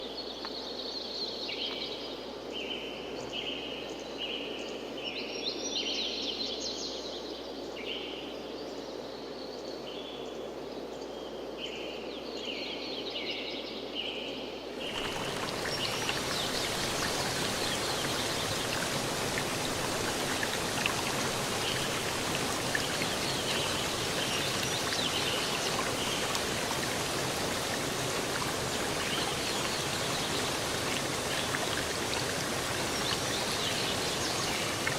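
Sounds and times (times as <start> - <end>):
birds calling: 14.8 - 34.9
running water rushing: 14.8 - 34.9.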